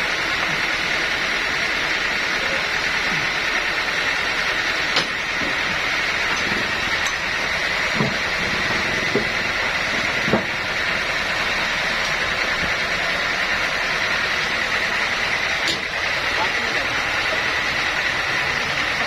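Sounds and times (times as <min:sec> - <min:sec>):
sawmill machinery running: 0:00.0 - 0:19.0.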